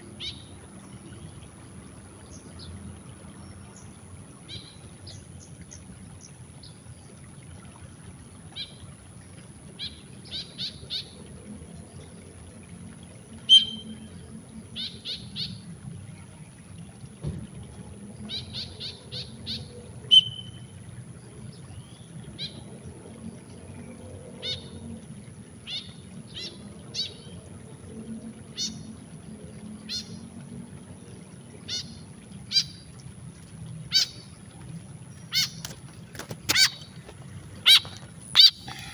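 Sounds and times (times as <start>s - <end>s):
bird giving short calls: 13.5s - 13.8s, 18.8s - 20.6s, 35.3s - 35.6s, 36.5s - 37.0s, 37.6s - 38.9s.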